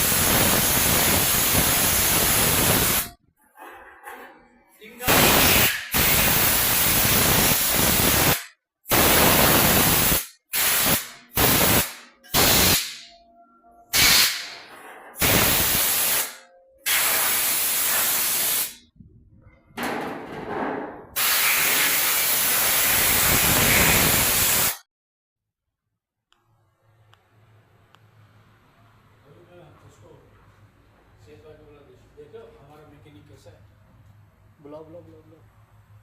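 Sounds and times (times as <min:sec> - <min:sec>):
air spray gun hissing: 0:00.0 - 0:03.1, 0:05.1 - 0:13.0, 0:14.0 - 0:14.4, 0:15.2 - 0:18.8, 0:21.2 - 0:24.8.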